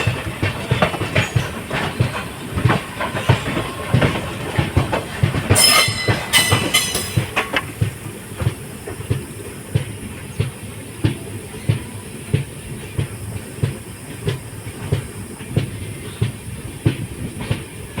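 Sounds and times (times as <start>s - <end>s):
train wheels clacking over rail joints: 0.0s - 18.0s
short high-pitched squeals: 5.6s - 7.4s.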